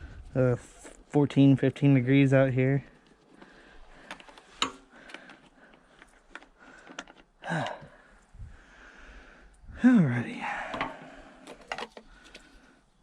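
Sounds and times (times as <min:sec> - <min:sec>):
person grunting: 0:07.4 - 0:08.0.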